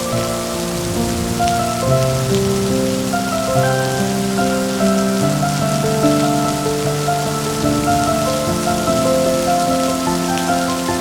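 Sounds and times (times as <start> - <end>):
gentle music of held notes: 0.0 - 11.0
steady rain: 0.0 - 11.0.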